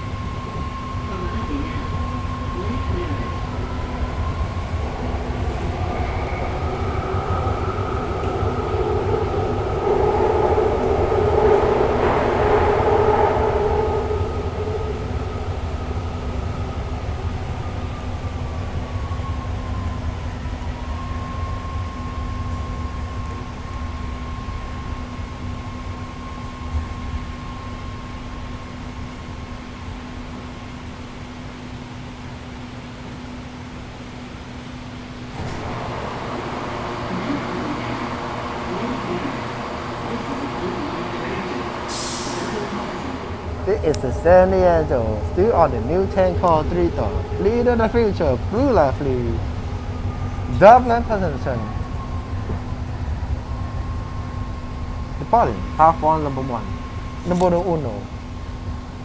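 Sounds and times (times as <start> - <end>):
low steady hum: 0.0 - 59.0
train electrical whine: 0.0 - 59.0
train rumble: 0.0 - 59.0.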